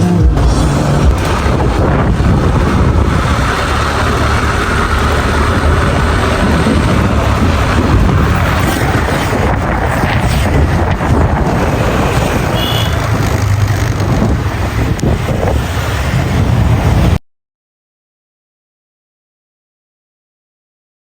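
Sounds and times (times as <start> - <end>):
wind buffeting microphone: 0.4 - 17.2.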